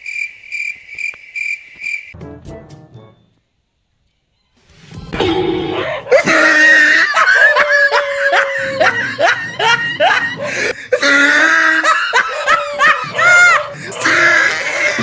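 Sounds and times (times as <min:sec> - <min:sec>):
people shrieking: 0:05.7 - 0:15.0
people laughing: 0:06.1 - 0:15.0.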